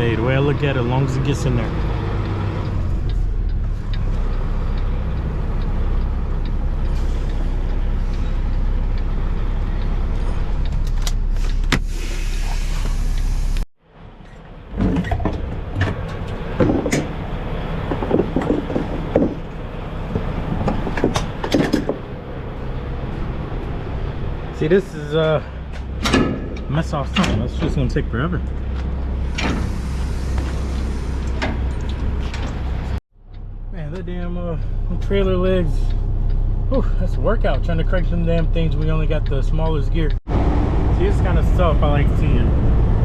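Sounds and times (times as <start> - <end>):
diesel truck engine running: 13.2 - 43.0
metallic clanks and rattles: 14.2 - 22.3, 25.7 - 28.6
sharp knocks: 17.9 - 19.5.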